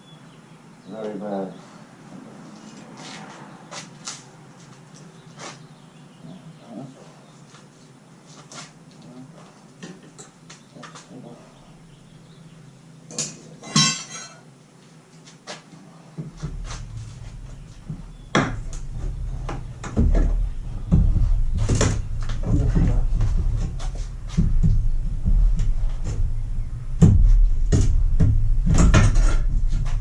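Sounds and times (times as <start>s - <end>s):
heavy low rumble: 16.2s - 30.0s.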